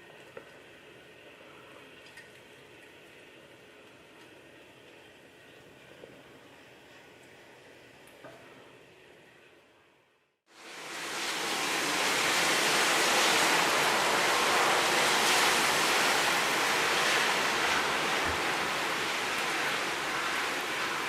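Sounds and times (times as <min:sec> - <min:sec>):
heavy rain: 0:10.6 - 0:21.0.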